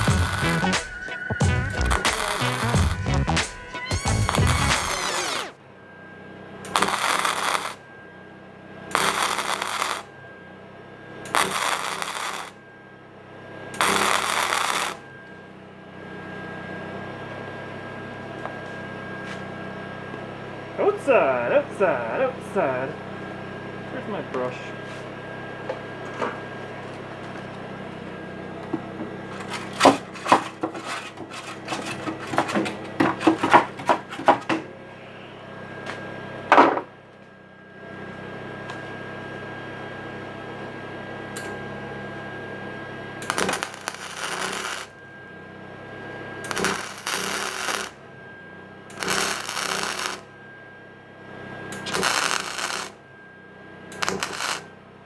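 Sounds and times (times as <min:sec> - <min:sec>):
welder crackling bursts: 0:00.0 - 0:05.6, 0:06.7 - 0:07.8, 0:08.9 - 0:10.1, 0:11.3 - 0:12.6, 0:13.8 - 0:15.0, 0:29.3 - 0:32.5, 0:43.2 - 0:45.0, 0:46.4 - 0:48.0, 0:48.9 - 0:50.3, 0:51.8 - 0:53.0, 0:53.9 - 0:54.7.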